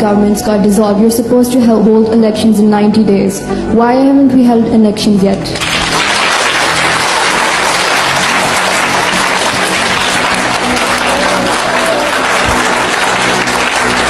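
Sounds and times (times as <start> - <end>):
background music: 0.0 - 14.0
audience applauding: 5.6 - 14.0.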